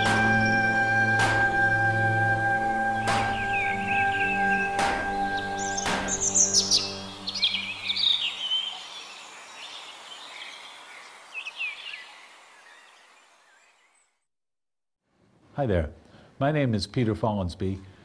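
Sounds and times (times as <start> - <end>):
sharp knock: 0.0 - 1.9, 2.9 - 7.5
held musical chord: 0.0 - 8.4
birds chirping and singing: 0.0 - 10.7.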